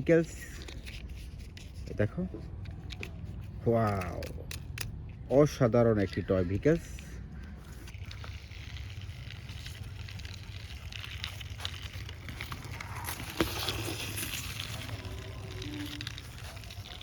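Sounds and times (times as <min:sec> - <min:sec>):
plastic toy car rustling and clicking: 0:00.2 - 0:17.0.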